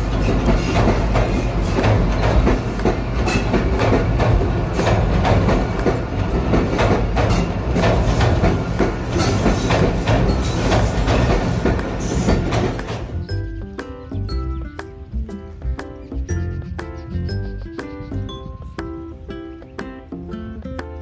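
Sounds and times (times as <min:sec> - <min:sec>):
train wheels clattering: 0:00.0 - 0:13.3
low train rumble: 0:00.0 - 0:13.8.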